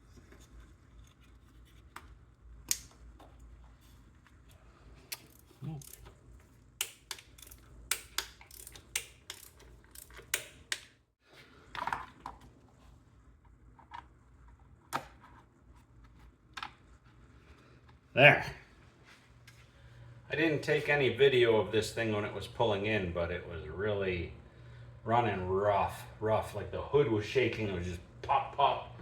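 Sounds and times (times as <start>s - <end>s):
tools clicking and knocking: 5.1s - 6.1s, 6.8s - 11.0s
low steady hum: 11.4s - 29.0s.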